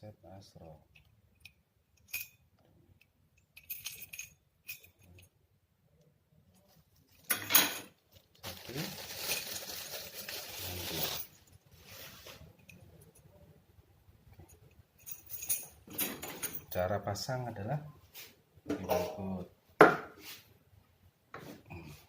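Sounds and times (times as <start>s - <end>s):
parts clattering: 7.1s - 8.2s, 14.5s - 16.8s.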